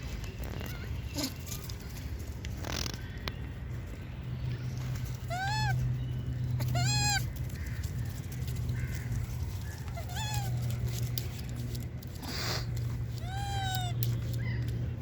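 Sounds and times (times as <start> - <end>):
monkeys calling: 5.2 - 5.8, 6.6 - 7.9, 8.7 - 10.8, 13.2 - 14.8.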